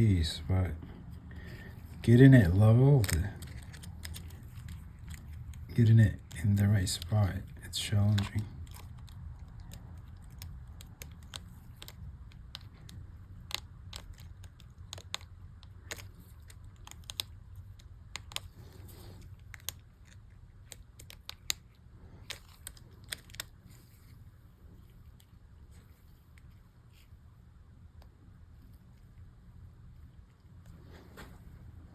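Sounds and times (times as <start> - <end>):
low steady hum: 0.0 - 31.9
plastic keycaps clicking: 1.8 - 23.6.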